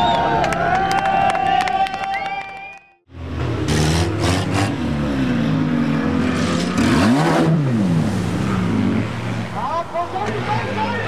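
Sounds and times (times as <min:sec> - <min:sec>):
racing engine revving: 0:03.2 - 0:09.5.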